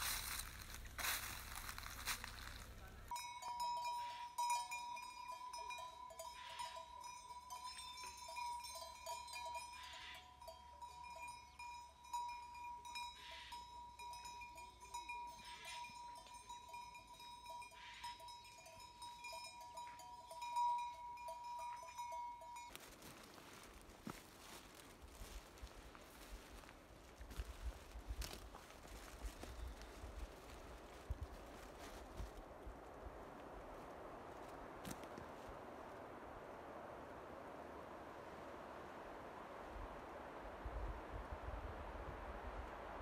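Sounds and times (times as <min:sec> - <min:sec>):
crunching noise: 0:00.0 - 0:03.1
livestock bells ringing: 0:00.0 - 0:25.4.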